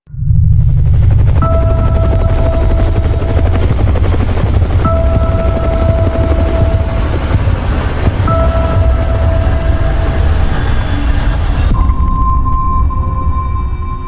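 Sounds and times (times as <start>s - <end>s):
helicopter rotor chopping: 0.4s - 11.7s
held electronic tone: 1.4s - 3.6s.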